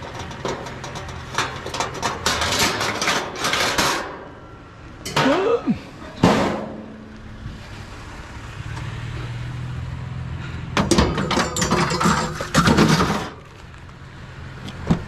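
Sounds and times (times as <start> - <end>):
loose metal rattling: 0.0 - 4.3, 10.8 - 13.7
truck engine humming: 0.0 - 15.0.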